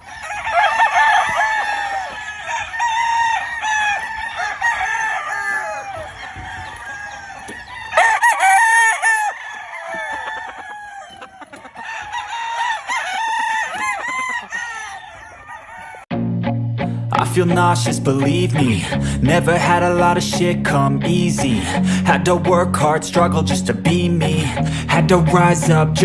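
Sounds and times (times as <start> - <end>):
chickens clucking: 0.0 - 16.1
roosters crowing: 0.0 - 16.1.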